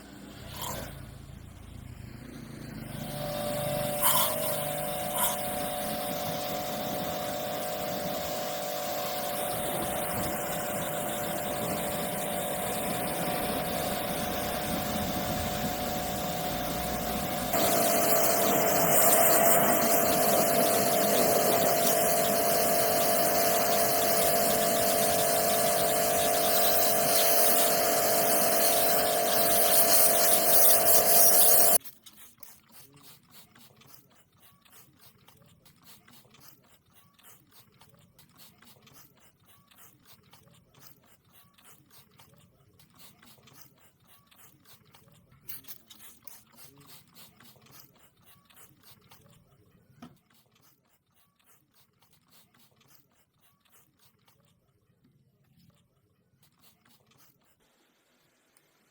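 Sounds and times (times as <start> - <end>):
machine whining: 0.0 - 31.8.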